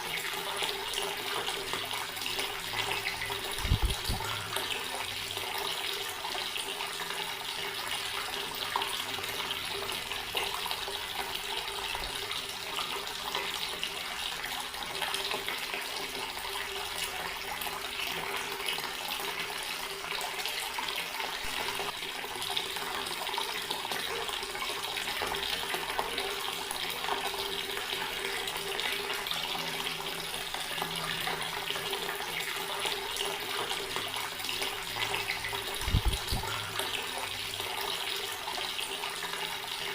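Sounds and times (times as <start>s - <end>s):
tap water splashing into sink: 0.0s - 14.0s, 20.2s - 39.9s.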